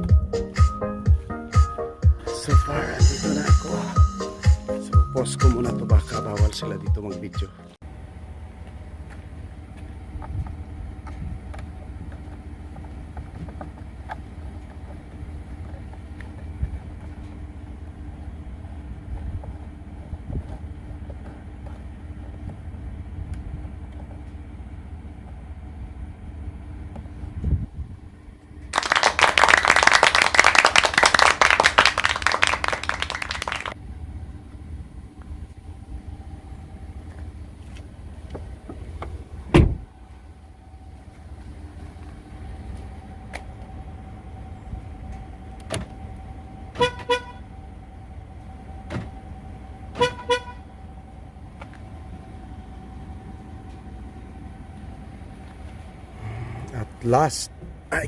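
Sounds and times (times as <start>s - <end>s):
sharp thump: 39.5s - 39.8s
vehicle horn chirps: 46.7s - 47.5s, 49.9s - 50.7s.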